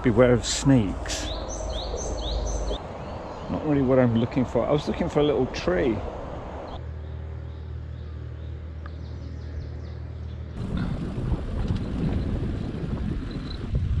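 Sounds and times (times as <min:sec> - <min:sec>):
wind buffeting microphone: 0:00.0 - 0:06.8, 0:10.6 - 0:14.0
steady low hum: 0:00.0 - 0:12.7.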